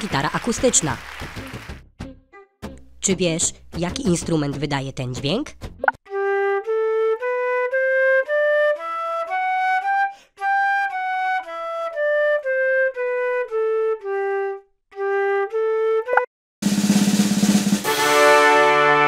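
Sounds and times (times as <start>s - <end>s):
recorder playing a melody: 6.1s - 16.3s.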